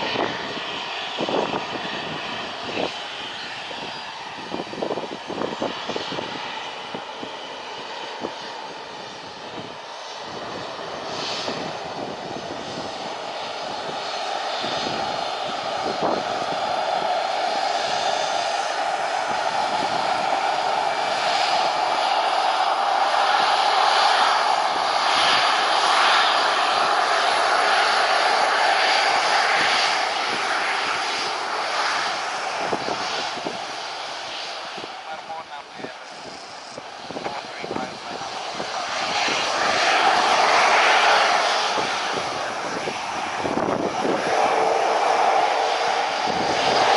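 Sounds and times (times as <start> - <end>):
airplane engines running: 0.0 - 46.9.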